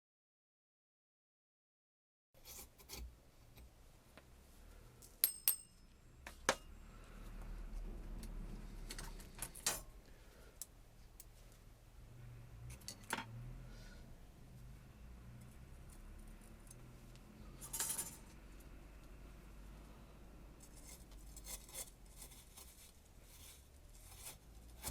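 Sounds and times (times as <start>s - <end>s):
faint low hum: 2.4s - 24.9s
small metal parts clinking: 17.6s - 18.4s.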